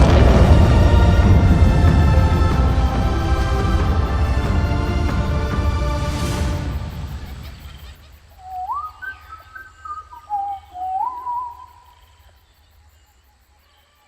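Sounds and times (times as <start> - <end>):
music: 0.0 - 7.5
rising whistled calls: 6.0 - 12.2.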